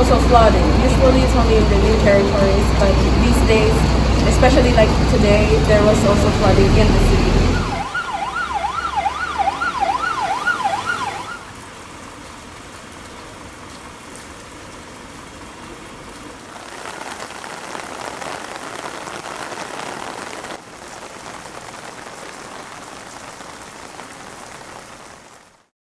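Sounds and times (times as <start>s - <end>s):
emergency vehicle siren wailing: 0.0s - 11.6s
heavy rain hissing: 0.0s - 25.7s.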